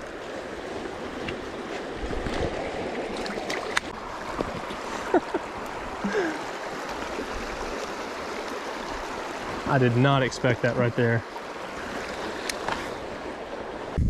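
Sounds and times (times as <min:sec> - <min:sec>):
water running over rocks: 0:00.0 - 0:13.9.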